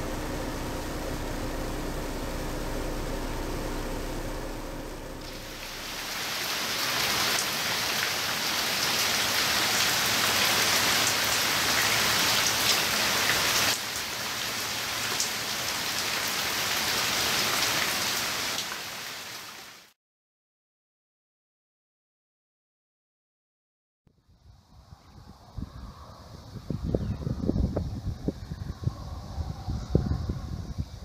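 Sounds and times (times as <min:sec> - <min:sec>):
steady rain falling: 0:03.0 - 0:19.9.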